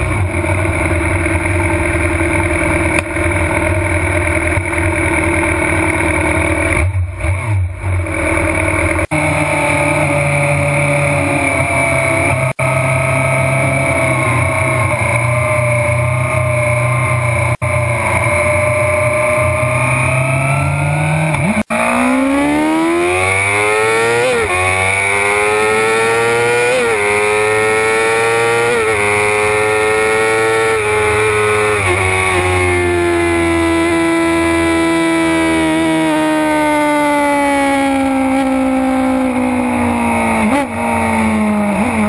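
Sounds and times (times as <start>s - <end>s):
motorcycle engine at high revs: 0.0s - 42.0s.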